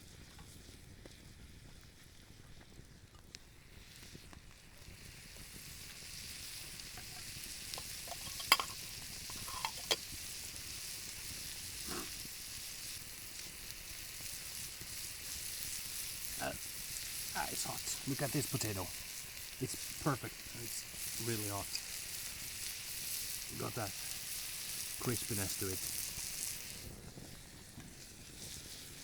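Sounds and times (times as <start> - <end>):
potatoes sizzling in a pan: 0.0 - 29.0
utensil clicking against pan: 7.0 - 10.0.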